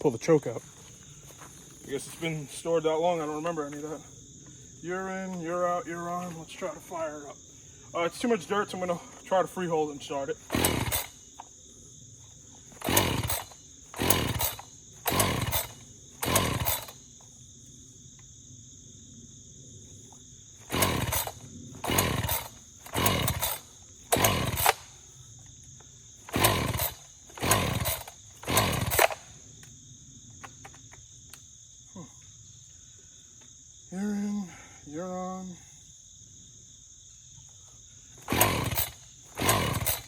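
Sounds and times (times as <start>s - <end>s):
crickets chirping: 0.0s - 40.0s
chainsaw pull-start cranking: 8.0s - 11.6s, 12.6s - 17.1s, 20.6s - 25.1s, 26.2s - 29.3s, 38.2s - 40.0s.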